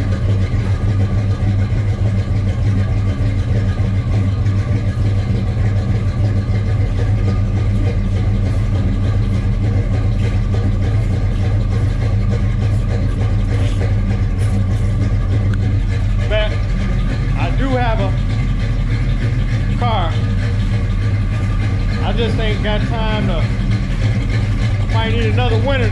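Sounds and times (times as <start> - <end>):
car engine idling: 0.0 - 25.9.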